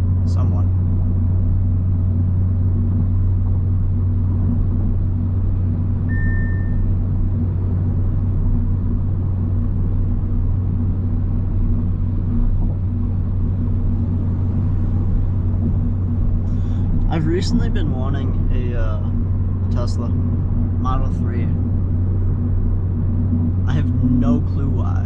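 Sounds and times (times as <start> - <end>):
engine and road noise drone: 0.0 - 25.0
brief high beep: 6.1 - 6.9.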